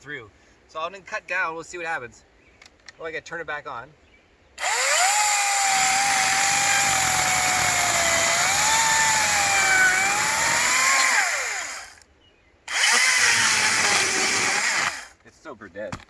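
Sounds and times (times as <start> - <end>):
electric chainsaw cutting log: 4.6 - 12.0, 12.7 - 15.2.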